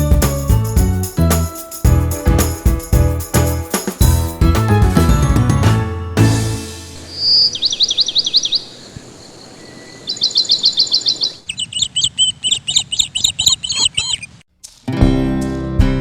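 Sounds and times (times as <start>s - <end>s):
bird chirping: 6.9s - 14.4s.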